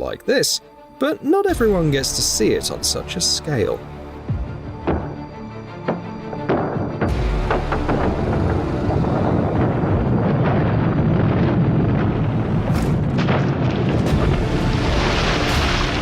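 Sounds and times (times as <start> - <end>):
deep rumble with sharp cracks: 4.4 - 16.0.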